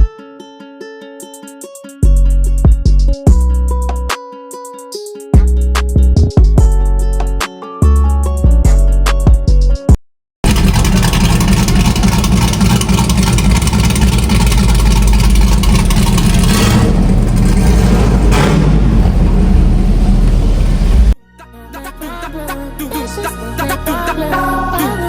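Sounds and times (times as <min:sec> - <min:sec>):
car engine and exhaust revving: 0:10.4 - 0:21.2.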